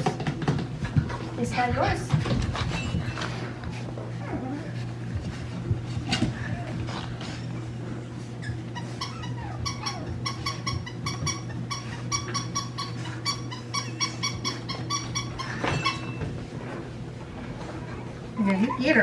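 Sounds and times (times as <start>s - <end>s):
puppy whining: 1.0s - 19.0s
puppy yapping: 8.4s - 16.2s.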